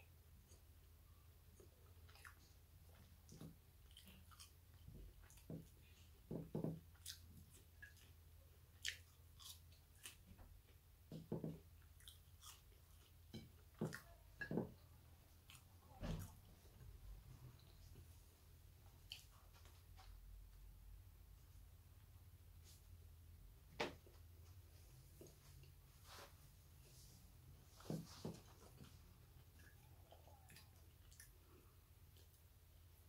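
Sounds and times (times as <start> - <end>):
mouth clicks and smacks: 1.6 - 10.5
person chewing chips: 8.7 - 10.4, 11.8 - 14.2.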